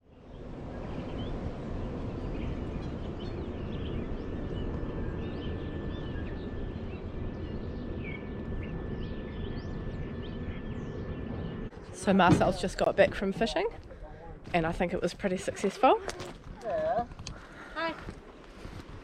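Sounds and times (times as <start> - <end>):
low outdoor rumble: 0.0 - 19.0
small birds chirping: 0.1 - 13.5.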